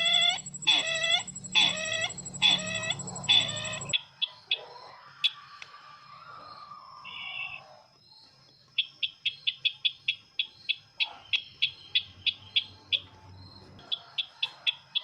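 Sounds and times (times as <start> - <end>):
background hum: 0.0 - 4.0
bird calls: 0.0 - 4.0.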